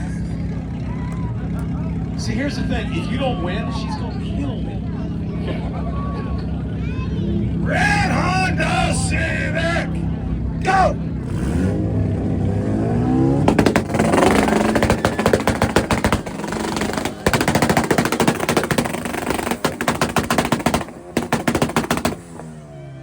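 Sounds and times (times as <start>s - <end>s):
car engine revving: 7.2s - 23.0s
exhaust pops and bangs: 12.6s - 22.7s.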